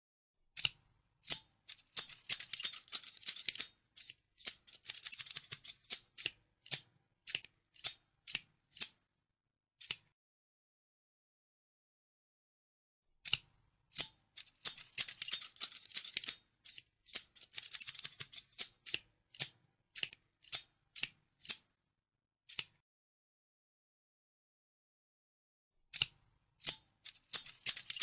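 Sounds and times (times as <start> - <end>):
scissors snipping: 0.6 - 9.0, 9.8 - 10.1, 13.2 - 21.7, 22.5 - 22.8, 25.9 - 28.0.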